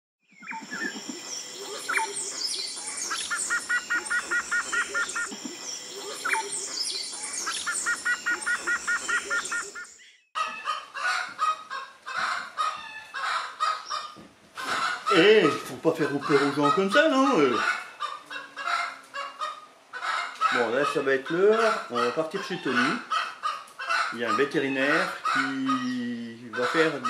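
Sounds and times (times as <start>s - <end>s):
bird trill: 0.2s - 10.3s
bird calls and chirps: 0.2s - 10.7s, 13.6s - 14.2s.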